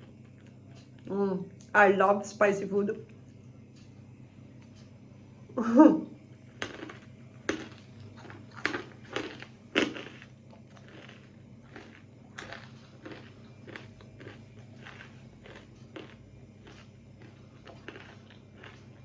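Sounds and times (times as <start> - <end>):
person chewing crunchy peanuts: 6.4 - 19.0.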